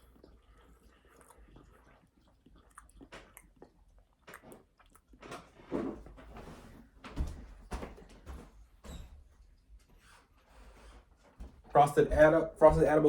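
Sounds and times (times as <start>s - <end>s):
wet mouth noises: 0.0s - 6.0s
crunchy chewing and biting: 0.0s - 6.2s.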